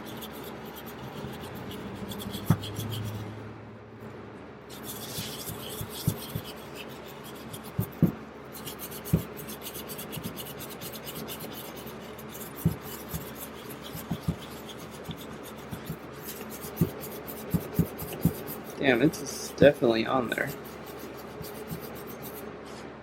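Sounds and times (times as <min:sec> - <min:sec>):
wire brush scrubbing metal: 0:00.0 - 0:03.3, 0:04.7 - 0:22.4
dull knocks against bench: 0:07.8 - 0:08.2.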